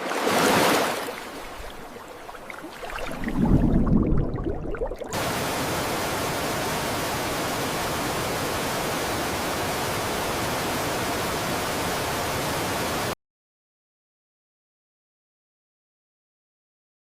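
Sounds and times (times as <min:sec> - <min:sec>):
static hiss: 0:05.2 - 0:13.2.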